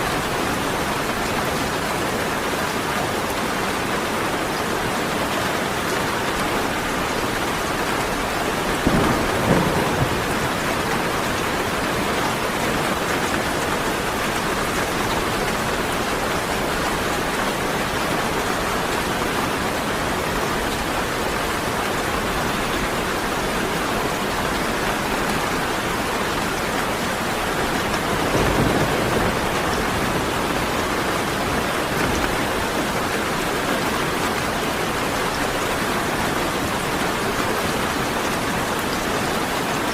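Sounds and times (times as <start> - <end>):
heavy rain: 0.0 - 39.9
thunder bursts: 8.6 - 12.5, 27.3 - 32.8.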